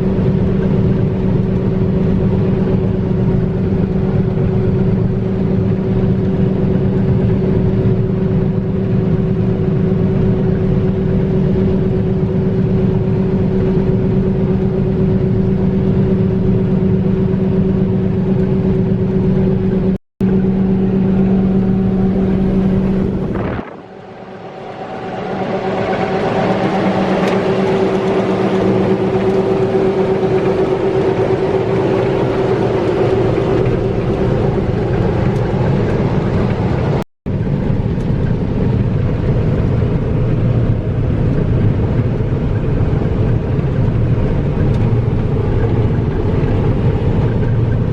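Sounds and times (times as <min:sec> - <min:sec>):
heavy machine engine droning: 0:00.0 - 0:47.9
hissy engine noise: 0:20.2 - 0:38.8.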